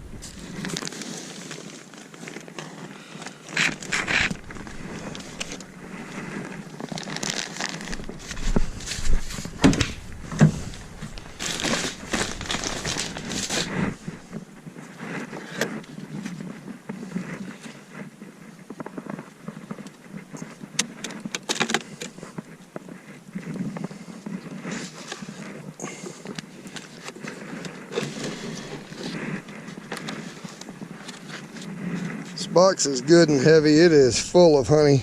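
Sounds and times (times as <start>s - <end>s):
wood knocking and scraping: 3.6s - 14.4s.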